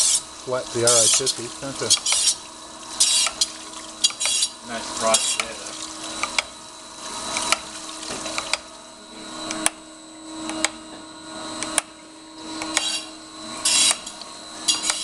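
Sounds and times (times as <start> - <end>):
grinding wheel on steel: 0.0 - 2.4, 3.0 - 5.6, 12.5 - 15.0
machine hum: 0.0 - 15.0.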